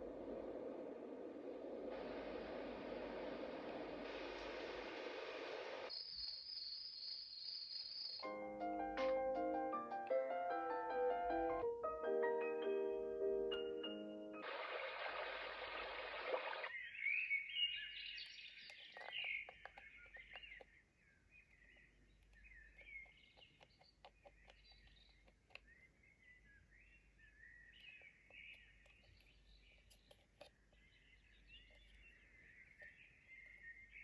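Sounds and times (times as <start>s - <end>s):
white noise hiss: 0.0s - 6.0s
recorded birdsong chirps: 0.0s - 34.0s.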